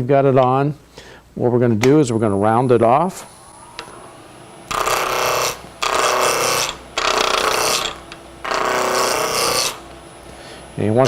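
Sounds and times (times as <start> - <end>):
lathe gouge cutting wood: 4.7 - 9.9.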